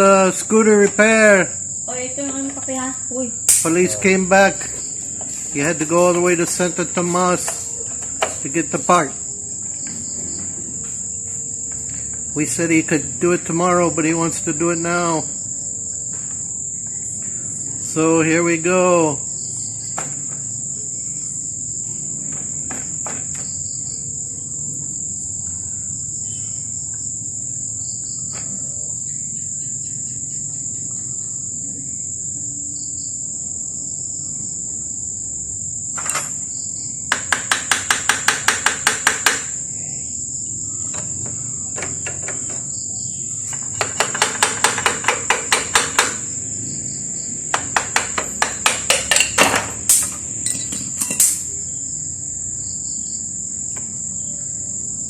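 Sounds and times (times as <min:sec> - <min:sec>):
crickets chirping: 0:00.0 - 0:55.0
hammer tapping on metal: 0:37.1 - 0:39.5, 0:43.5 - 0:46.3, 0:47.5 - 0:51.5.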